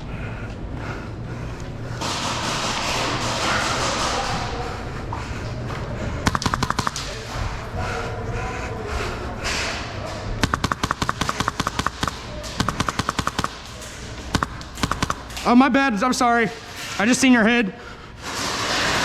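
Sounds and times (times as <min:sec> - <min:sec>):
indistinct voices: 0:03.1 - 0:18.1
airsoft guns firing bursts: 0:06.3 - 0:07.3, 0:10.4 - 0:15.7.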